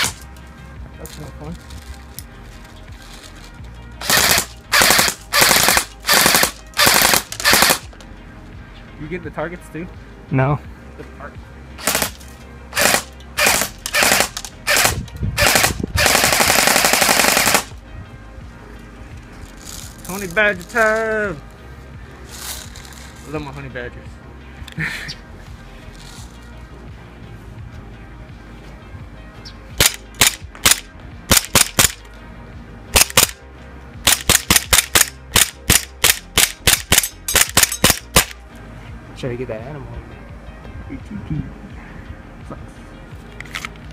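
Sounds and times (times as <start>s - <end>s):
airsoft gun shots: 4.0s - 7.9s, 11.8s - 12.2s, 12.8s - 17.7s, 29.8s - 32.0s, 33.0s - 33.4s, 34.0s - 38.4s
electric rifle firing bursts: 4.0s - 7.9s, 11.8s - 12.2s, 12.8s - 17.7s, 29.8s - 32.0s, 33.0s - 33.4s, 34.0s - 38.4s.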